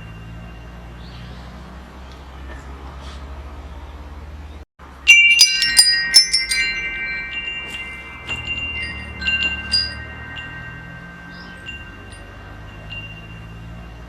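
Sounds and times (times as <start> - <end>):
metal wind chime ringing: 0.0 - 1.5, 5.0 - 14.0.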